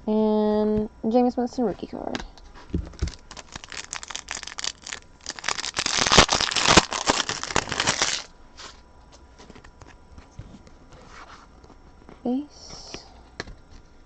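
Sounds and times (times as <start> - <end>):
wrapper crinkling and tearing: 2.9 - 8.3.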